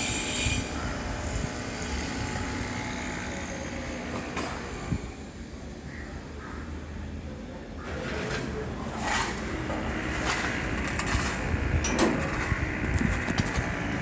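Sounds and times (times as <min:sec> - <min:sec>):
machinery rumbling: 0:07.8 - 0:14.0.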